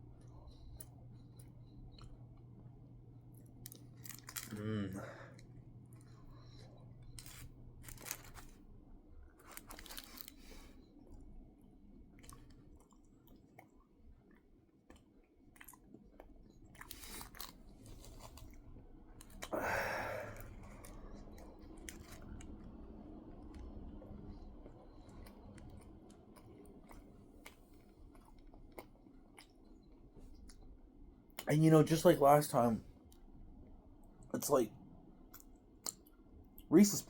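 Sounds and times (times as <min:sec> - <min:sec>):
person chewing: 0:12.1 - 0:22.7, 0:23.4 - 0:30.7.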